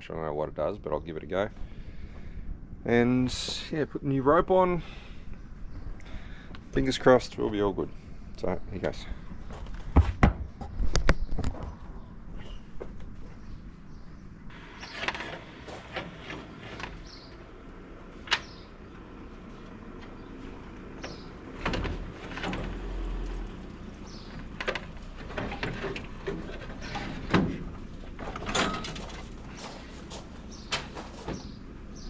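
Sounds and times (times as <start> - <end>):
clanks and knocks on metal: 24.4 - 29.6.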